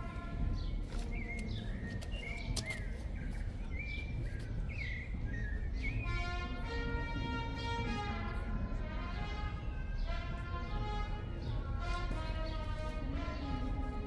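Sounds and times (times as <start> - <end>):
small birds chirping: 0.0 - 6.4
low background noise: 0.0 - 14.0.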